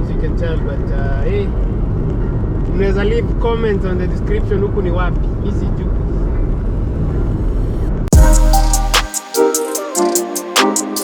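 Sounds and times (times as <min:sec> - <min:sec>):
deep bass note: 0:08.1 - 0:09.1
drum hit: 0:08.1 - 0:09.4.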